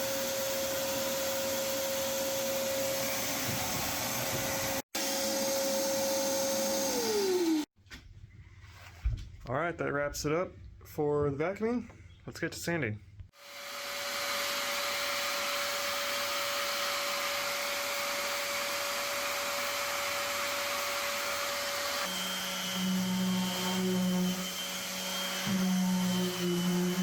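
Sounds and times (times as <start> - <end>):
power sander running: 0.0 - 7.7, 13.4 - 27.0.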